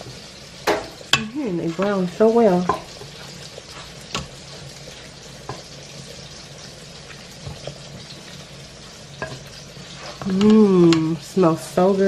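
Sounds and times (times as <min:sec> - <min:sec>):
food sizzling: 0:00.0 - 0:12.0
tongs clicking on metal pot: 0:09.2 - 0:09.6, 0:10.2 - 0:11.2.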